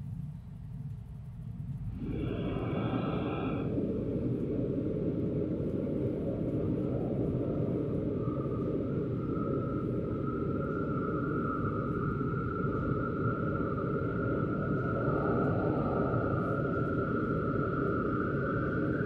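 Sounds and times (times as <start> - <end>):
high-pitched whine: 0.0 - 19.0
train rumbling on rails: 0.6 - 7.9.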